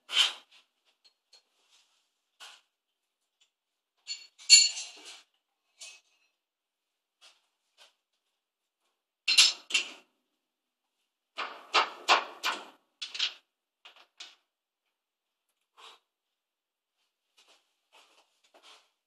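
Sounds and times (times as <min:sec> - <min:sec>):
metal tools knocking and clattering: 0:04.0 - 0:05.1, 0:09.3 - 0:10.0.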